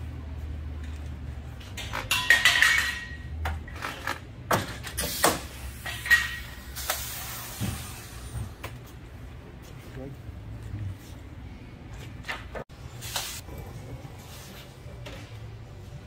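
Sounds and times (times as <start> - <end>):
tools and parts knocking and clanking: 0.8 - 6.6.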